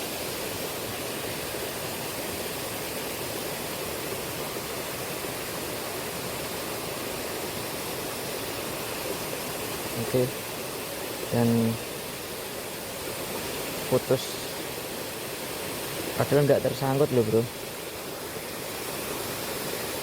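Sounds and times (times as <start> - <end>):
river current rushing: 0.0 - 20.0.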